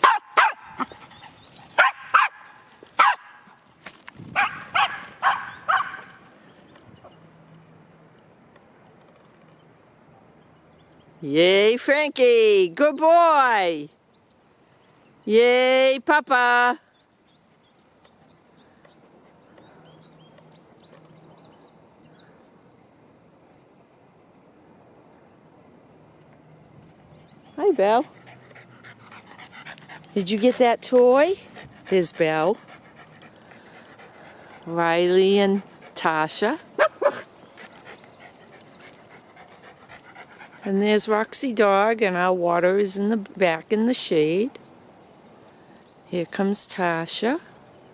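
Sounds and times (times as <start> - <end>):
dog barking: 0.0 - 0.9, 1.8 - 3.5, 4.4 - 6.2, 36.8 - 37.3
small songbirds chirping: 0.0 - 3.4, 4.4 - 7.3, 8.8 - 11.4, 13.8 - 15.4, 16.8 - 22.9, 26.7 - 36.0, 36.6 - 41.1, 44.6 - 46.5.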